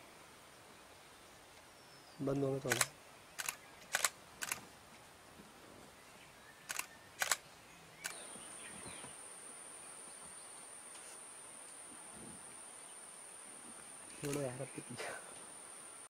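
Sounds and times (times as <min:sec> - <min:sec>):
camera shutter clicks: 0:02.7 - 0:04.6, 0:06.7 - 0:07.4, 0:14.2 - 0:14.5.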